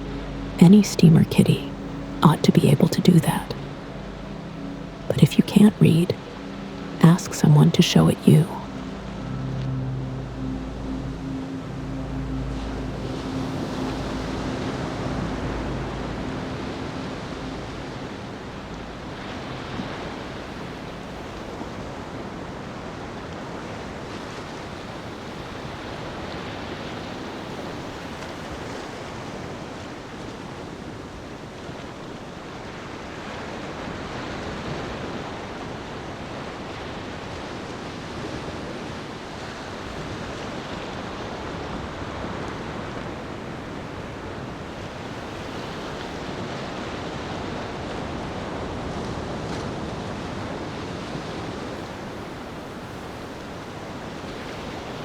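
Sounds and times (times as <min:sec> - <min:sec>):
low steady drone: 0:00.0 - 0:22.9.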